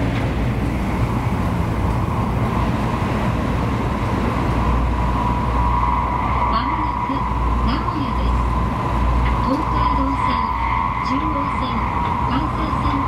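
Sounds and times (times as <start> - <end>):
train wheels rumbling on rail: 0.0 - 13.0
thin steady tone: 4.5 - 13.0.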